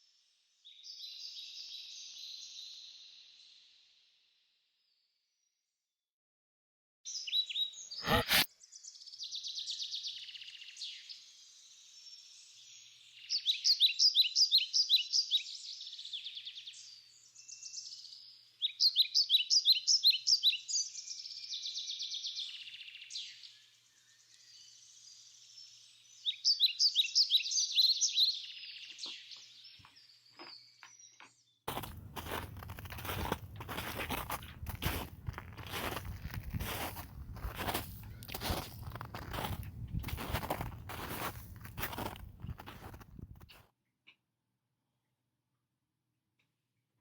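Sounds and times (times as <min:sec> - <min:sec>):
birds chirping: 0:26.2 - 0:43.5.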